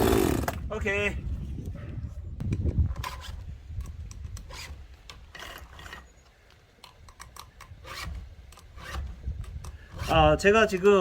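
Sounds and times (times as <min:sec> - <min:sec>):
file rasping on chainsaw chain: 0:07.8 - 0:09.2, 0:09.8 - 0:10.4.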